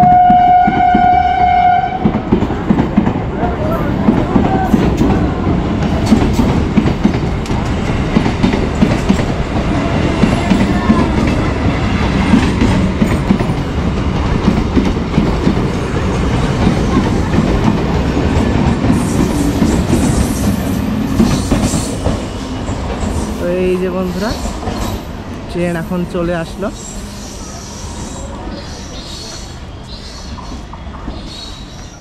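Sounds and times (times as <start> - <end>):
train wheels clattering over rail joints: 5.8 - 23.4.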